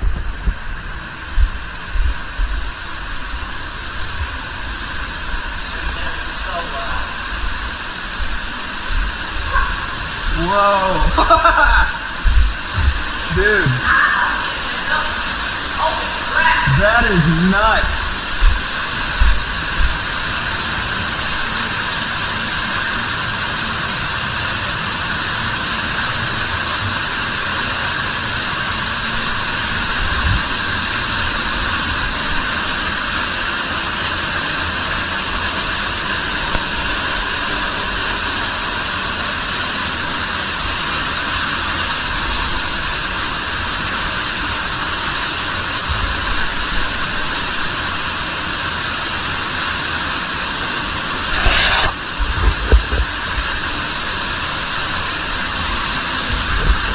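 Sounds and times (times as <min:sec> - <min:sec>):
waterfall rushing: 0:00.8 - 0:56.9
low thumps: 0:12.2 - 0:13.1.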